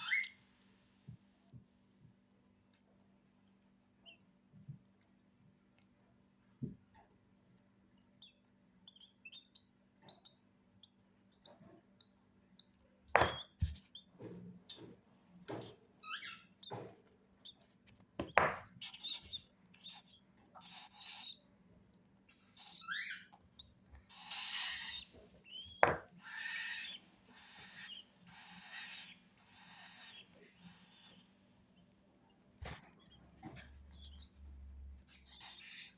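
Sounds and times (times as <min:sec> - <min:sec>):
chicks raspy hissing begging calls: 0:26.2 - 0:31.1.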